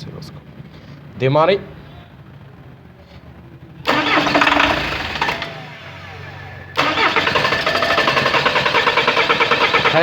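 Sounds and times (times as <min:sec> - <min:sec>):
starter motor cranking engine: 0:03.8 - 0:10.0.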